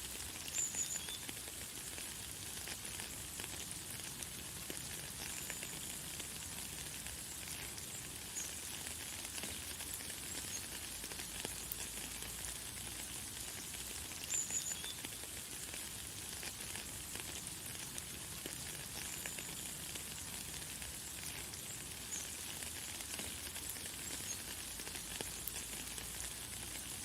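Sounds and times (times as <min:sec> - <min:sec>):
light rain falling: 0:00.0 - 0:27.0.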